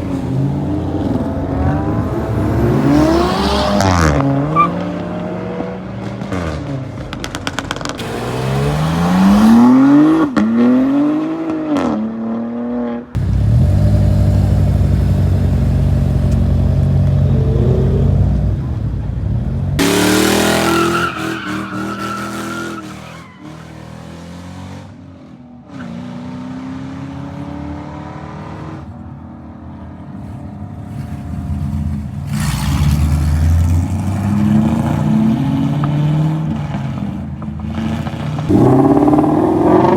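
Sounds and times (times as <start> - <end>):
cars revving and accelerating: 0.0 - 39.9.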